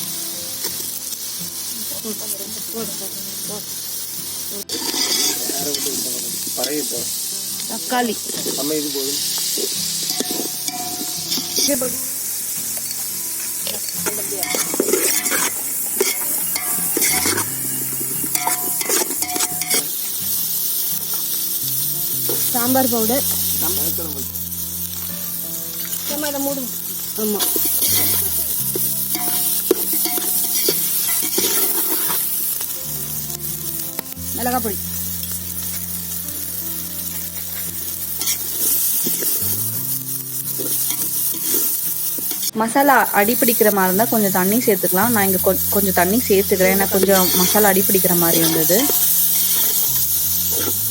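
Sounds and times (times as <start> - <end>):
vegetables sizzling in oil: 0.0 - 50.9
spoon scraping pan: 4.6 - 6.9, 8.1 - 20.2, 27.3 - 32.7, 37.0 - 39.4, 40.5 - 42.6, 43.3 - 50.9.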